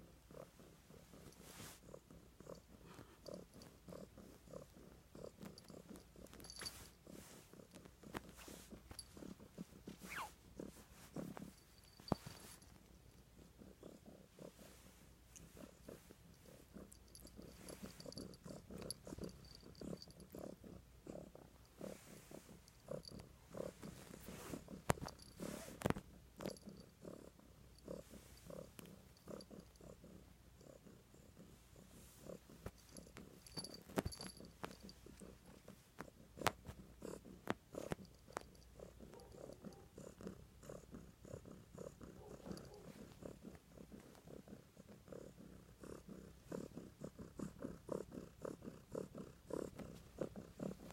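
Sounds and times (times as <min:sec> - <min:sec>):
cat purring: 0:00.0 - 0:50.9.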